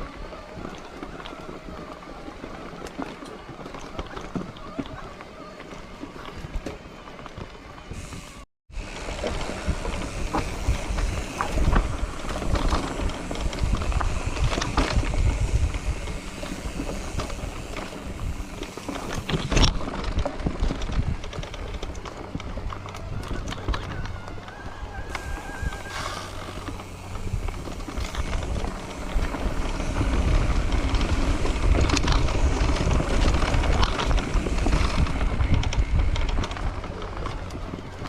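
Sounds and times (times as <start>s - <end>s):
bicycle tyres rumbling on trail: 0.0s - 38.0s
wind on microphone: 7.9s - 38.0s.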